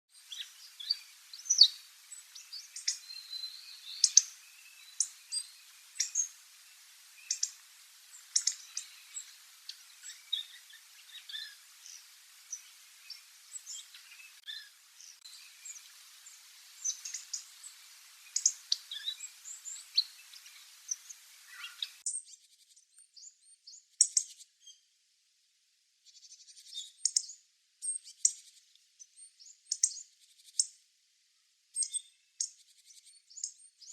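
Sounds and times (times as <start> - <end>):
faint background hiss: 0.1 - 33.9.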